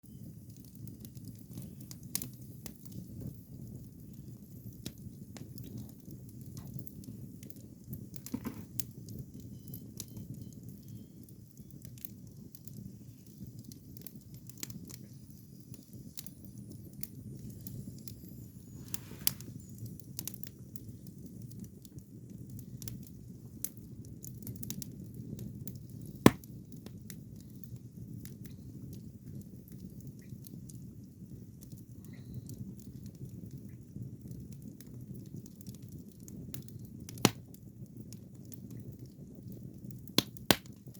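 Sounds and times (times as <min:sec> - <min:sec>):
fire crackling and popping: 0:00.0 - 0:40.9
loud sharp pop: 0:26.3 - 0:26.5.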